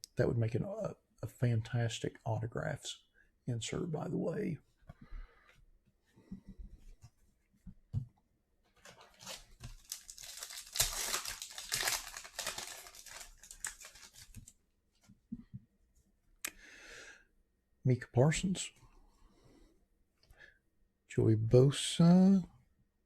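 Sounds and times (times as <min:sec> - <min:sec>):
foil wrapper tearing and crinkling: 0:08.9 - 0:14.5.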